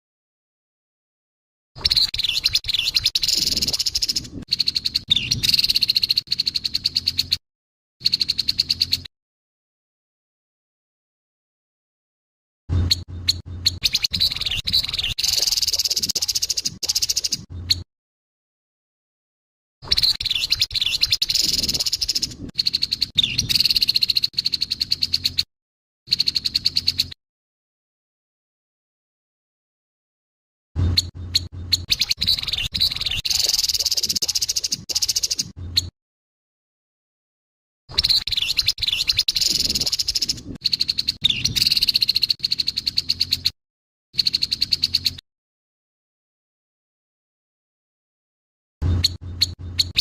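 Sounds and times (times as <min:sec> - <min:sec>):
bird harsh rasping chatter: 0:01.8 - 0:07.4, 0:08.0 - 0:09.1, 0:12.9 - 0:17.8, 0:19.9 - 0:25.4, 0:26.1 - 0:27.1, 0:30.9 - 0:35.9, 0:38.0 - 0:43.5.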